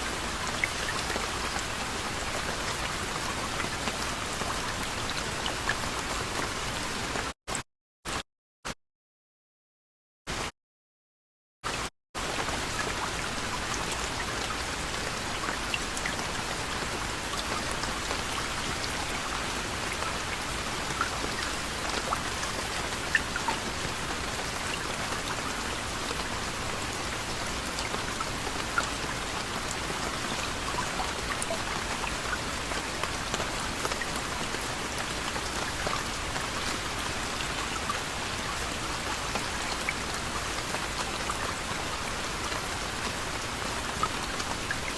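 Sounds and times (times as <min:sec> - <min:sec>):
gentle rain falling: 0:00.0 - 0:07.3, 0:11.7 - 0:44.9
raindrops ticking: 0:12.4 - 0:38.0.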